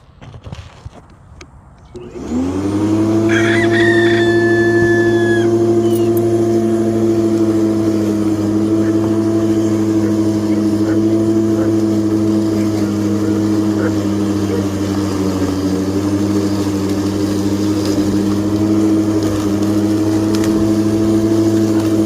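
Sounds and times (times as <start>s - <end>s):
electric lawn mower motor: 1.8s - 22.0s
rooster crowing: 3.1s - 6.9s.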